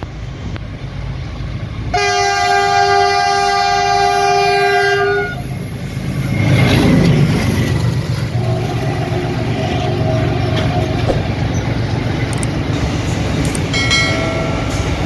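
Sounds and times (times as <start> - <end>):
locomotive engine rumble: 0.0 - 15.0
train wheels on rails: 0.0 - 15.0
locomotive horn blast: 1.9 - 5.4.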